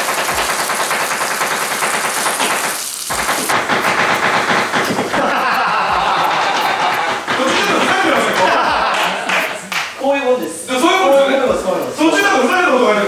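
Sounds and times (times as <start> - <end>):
fish sizzling in oil: 0.0 - 3.9.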